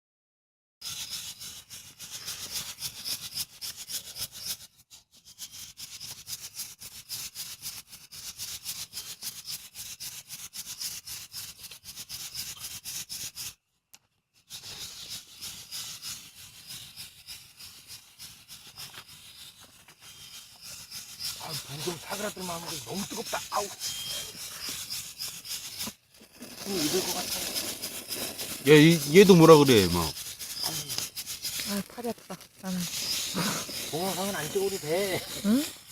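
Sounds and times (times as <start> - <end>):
coffee beans rattling in roaster: 15.3 - 35.9.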